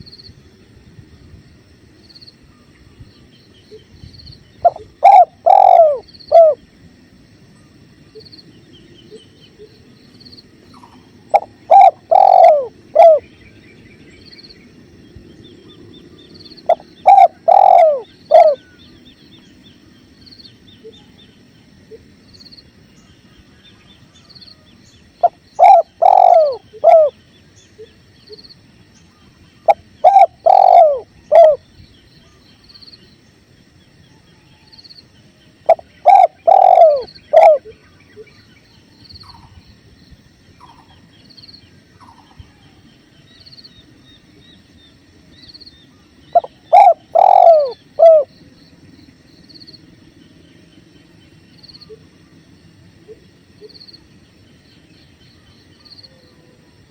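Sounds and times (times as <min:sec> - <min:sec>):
dove cooing: 0:04.6 - 0:06.6, 0:10.8 - 0:13.3, 0:16.6 - 0:18.8, 0:25.2 - 0:27.2, 0:29.6 - 0:31.7, 0:35.7 - 0:38.3, 0:46.3 - 0:48.3.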